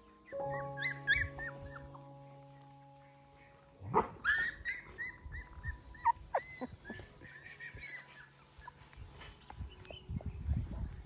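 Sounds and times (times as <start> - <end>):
puppies whimpering: 0.3 - 2.1, 4.2 - 9.0.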